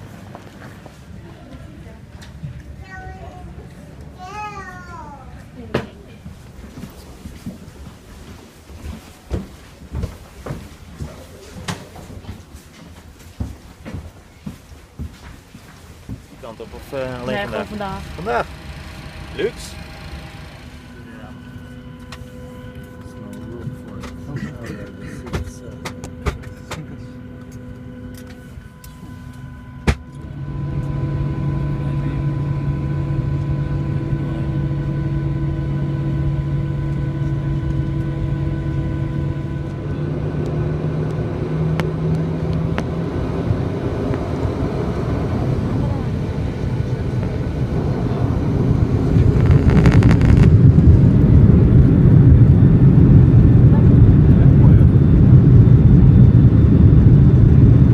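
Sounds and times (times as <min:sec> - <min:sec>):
airplane cabin rumble: 0:00.0 - 0:57.9
mechanical hum: 0:00.0 - 0:57.9
low drone: 0:16.4 - 0:57.9.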